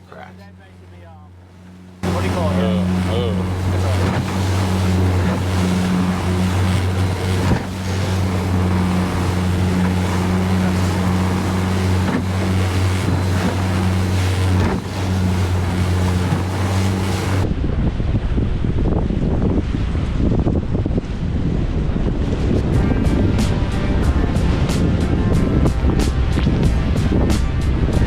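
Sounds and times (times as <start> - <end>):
hull knocking on waves: 0.0 - 17.4
boat motor running: 0.0 - 17.5, 19.2 - 28.0
wind and water rushing: 0.0 - 28.0.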